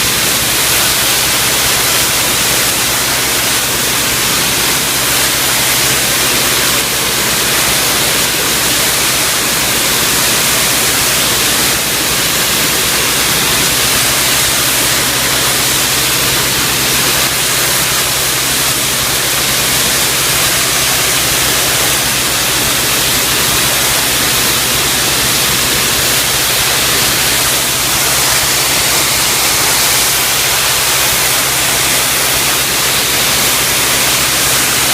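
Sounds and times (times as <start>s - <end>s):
pressure washer spraying water: 0.0s - 34.9s
steady low hum: 12.3s - 34.9s.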